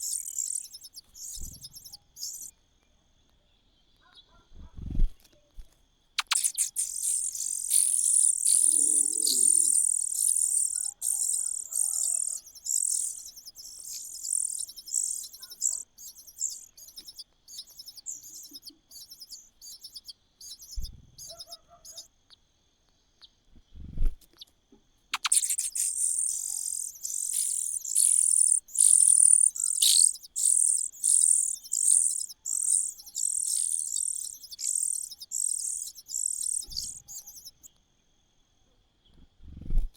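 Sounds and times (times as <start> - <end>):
nestling birds peeping: 0.0 - 2.5, 6.2 - 22.1, 25.1 - 37.7.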